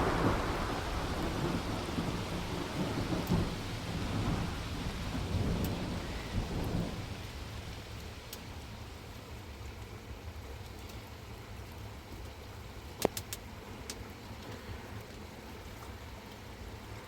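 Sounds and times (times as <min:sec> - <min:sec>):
low thunder rolling: 0:00.0 - 0:08.0
rain falling: 0:00.0 - 0:17.0.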